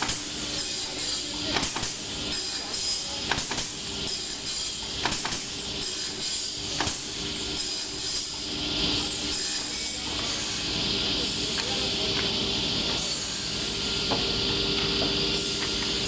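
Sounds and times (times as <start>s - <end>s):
sharp machine knock: 1.5s - 2.1s, 3.2s - 3.9s, 5.0s - 5.6s, 6.8s - 7.1s.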